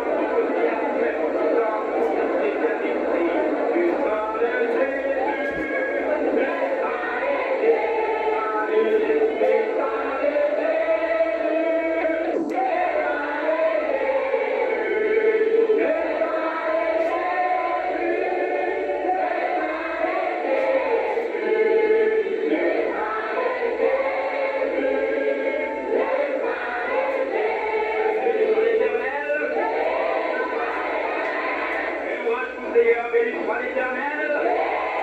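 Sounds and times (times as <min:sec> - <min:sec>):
group singing a hymn: 0:00.0 - 0:35.0.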